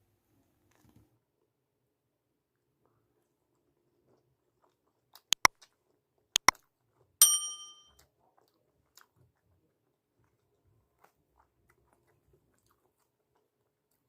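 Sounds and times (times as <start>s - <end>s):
sharp clicks: 6.4s - 6.6s
metal utensil striking a dish: 7.2s - 7.9s.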